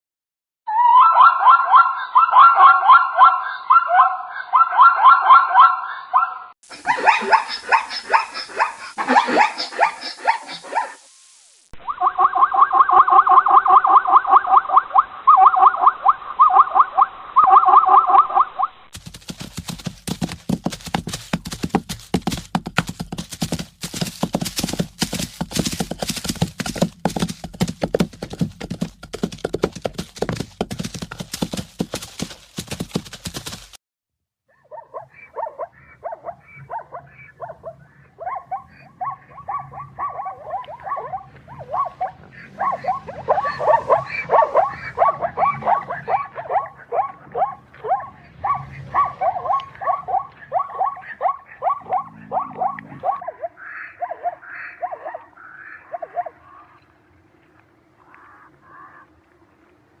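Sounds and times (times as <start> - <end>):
zebras barking yelps: 0.8 - 11.0, 11.8 - 20.8, 34.5 - 56.7.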